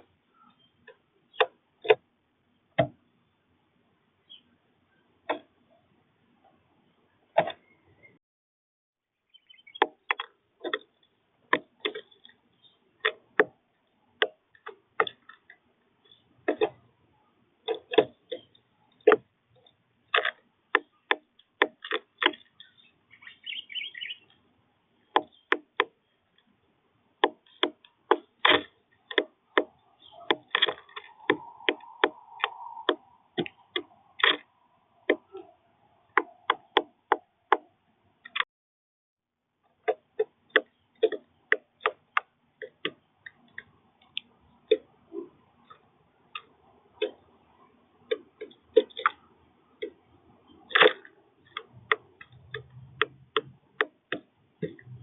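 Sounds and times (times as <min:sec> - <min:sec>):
bird twittering: 0:09.3 - 0:10.0, 0:22.5 - 0:24.4, 0:25.0 - 0:26.2, 0:29.5 - 0:34.2
birds pecking at feeder: 0:27.2 - 0:37.2.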